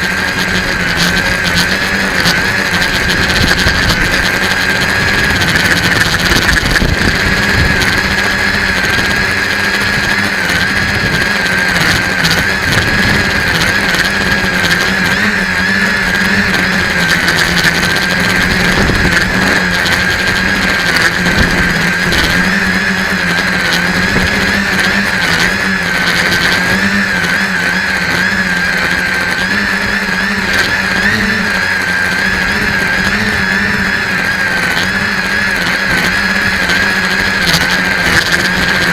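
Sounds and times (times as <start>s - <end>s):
wind buffeting: 0.0s - 38.1s
electric motors and propellers whining: 0.0s - 38.9s.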